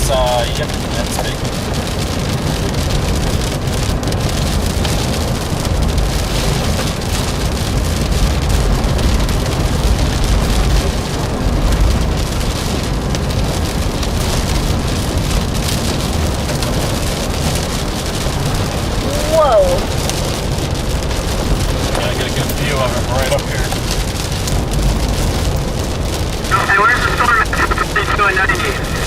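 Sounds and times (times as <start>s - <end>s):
heavy rain pattering: 0.0s - 29.0s.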